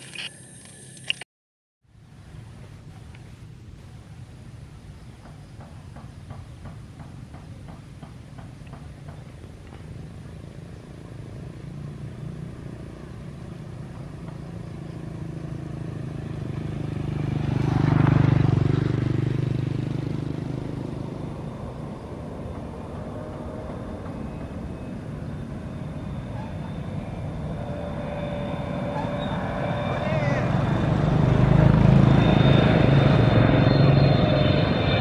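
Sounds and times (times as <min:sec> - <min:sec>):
vehicle engine passing by: 0:09.8 - 0:35.0.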